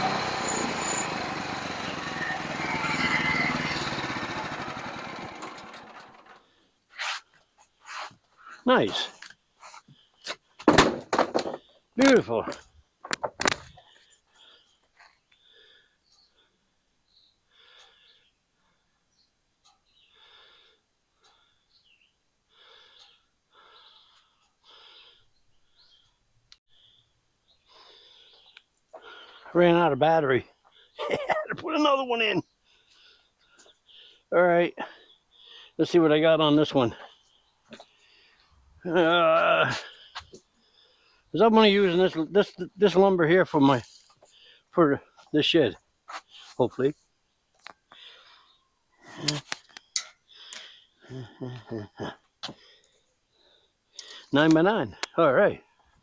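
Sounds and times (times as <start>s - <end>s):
sawmill engine running down: 0.0s - 6.4s
person breathing rhythmically: 17.4s - 19.1s, 20.0s - 21.8s, 22.4s - 26.0s, 32.6s - 34.3s, 35.0s - 35.8s, 37.0s - 38.6s, 39.8s - 41.3s, 47.9s - 48.6s, 50.2s - 51.4s.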